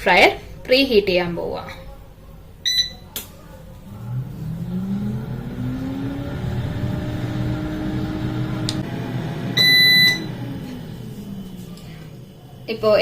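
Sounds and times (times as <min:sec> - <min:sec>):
air fryer fan humming: 0:00.0 - 0:13.0
electronic beep: 0:02.7 - 0:03.0, 0:09.6 - 0:10.3.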